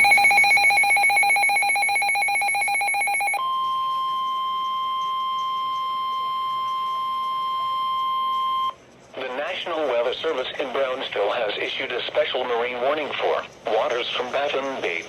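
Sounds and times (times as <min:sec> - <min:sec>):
steady alarm tone: 0:00.0 - 0:08.7.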